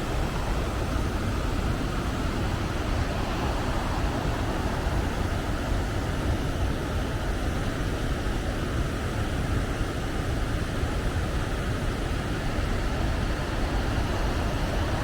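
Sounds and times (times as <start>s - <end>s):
waterfall roaring: 0.0s - 7.4s.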